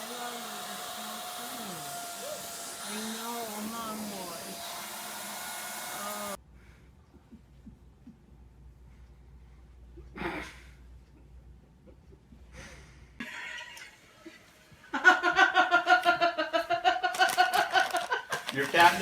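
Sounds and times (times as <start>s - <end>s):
person laughing hard: 14.9s - 18.8s.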